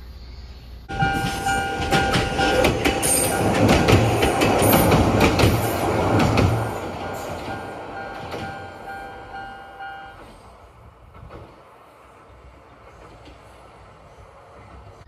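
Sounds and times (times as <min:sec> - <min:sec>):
train motor whine: 0:00.9 - 0:10.5
train wheels clattering on rail joints: 0:00.9 - 0:11.8, 0:12.7 - 0:13.8.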